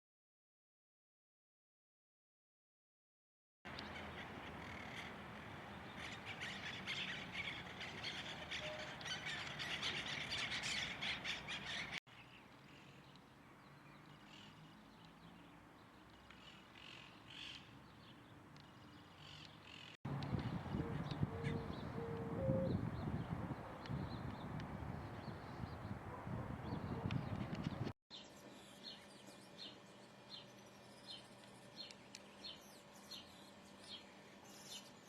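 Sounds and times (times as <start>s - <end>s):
flock of birds calling: 5.8s - 12.0s, 20.7s - 23.1s.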